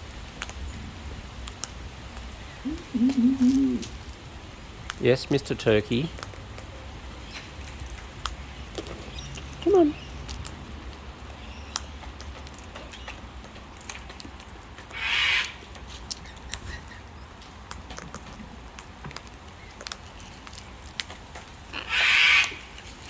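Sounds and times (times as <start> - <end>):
birds squawking: 2.6 - 3.9, 14.9 - 15.6, 21.7 - 22.8.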